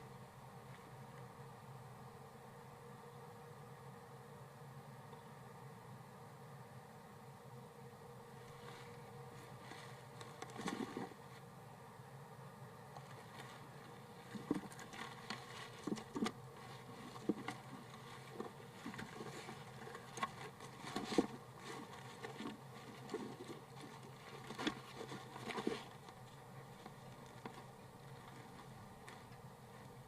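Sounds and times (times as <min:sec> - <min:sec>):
low microphone hum: 0:00.0 - 0:30.0
scratching and tapping in wooden box: 0:09.6 - 0:11.2, 0:12.9 - 0:30.0.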